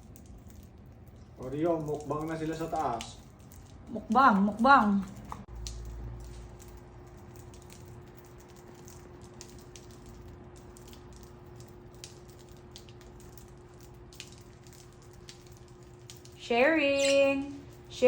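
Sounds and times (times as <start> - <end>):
beak clicks: 16.9 - 17.4.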